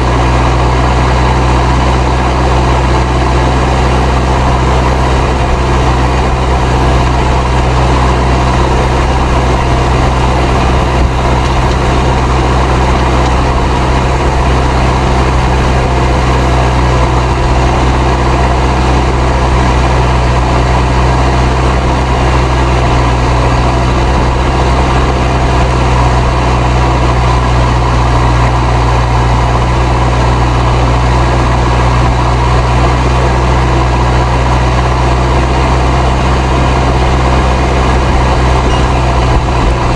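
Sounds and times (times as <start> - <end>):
tractor diesel engine under load: 0.0 - 39.9
turbo whistling: 37.8 - 39.9.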